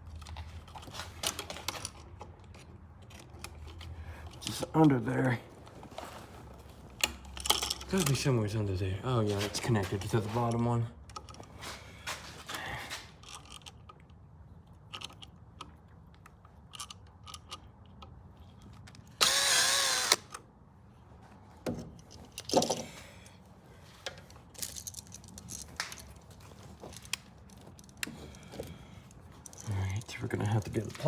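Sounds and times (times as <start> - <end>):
clicks and knocks of handling wires: 0.1 - 4.6, 9.3 - 19.2, 21.6 - 31.0
power drill running: 19.2 - 20.3.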